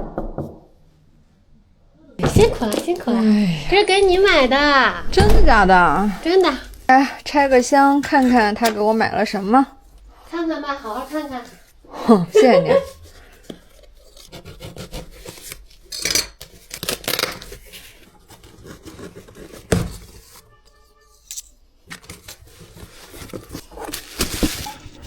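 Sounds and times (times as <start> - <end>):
cardboard tearing and scraping: 12.8 - 20.4, 22.0 - 25.0.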